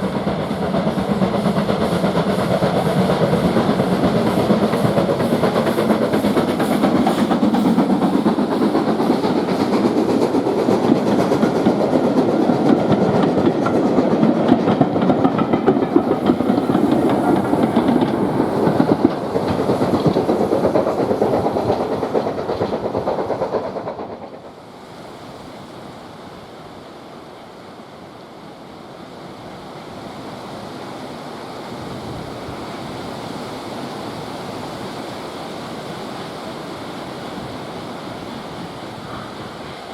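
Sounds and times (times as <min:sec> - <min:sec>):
steady rushing noise: 0:00.0 - 0:25.7
steam train passing: 0:00.0 - 0:39.9
wheels clicking over rail joints: 0:00.6 - 0:24.4.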